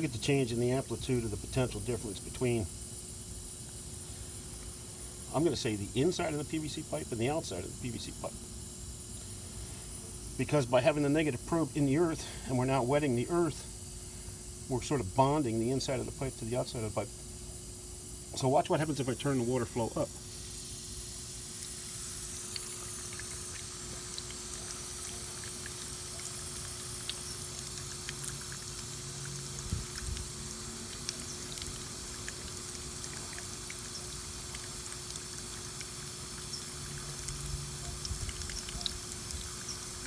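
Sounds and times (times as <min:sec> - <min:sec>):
faint steady hum: 0:00.0 - 0:40.0
water running from a hose: 0:00.0 - 0:40.0.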